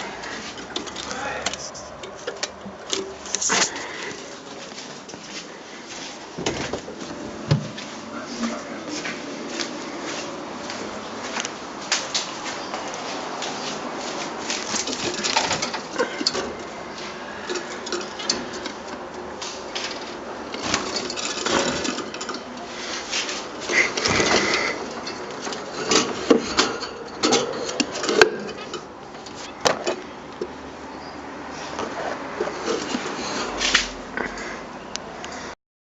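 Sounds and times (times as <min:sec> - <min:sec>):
birds clicking and fluttering in cage: 0:00.0 - 0:04.2, 0:10.7 - 0:30.5.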